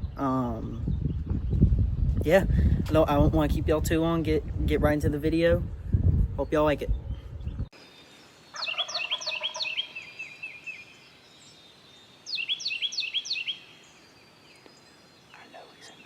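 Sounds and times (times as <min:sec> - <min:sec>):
wild turkey gobbling: 0:08.5 - 0:10.6.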